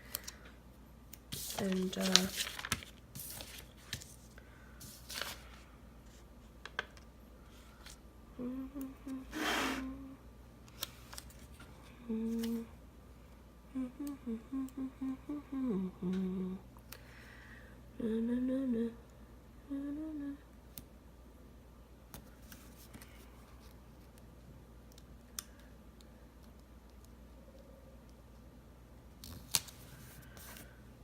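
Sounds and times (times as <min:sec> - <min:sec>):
woman humming a tune: 0:08.3 - 0:10.3, 0:11.9 - 0:12.8, 0:13.7 - 0:16.7, 0:18.0 - 0:20.5.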